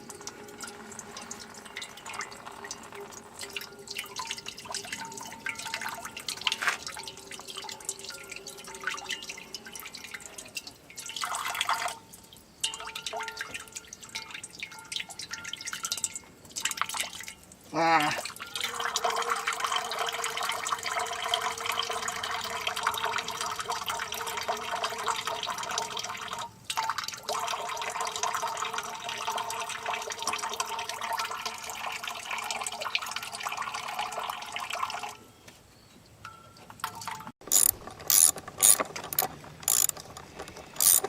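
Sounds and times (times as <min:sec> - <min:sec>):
ratchet wrench clicking: 0:37.5 - 0:40.1, 0:40.8 - 0:41.0.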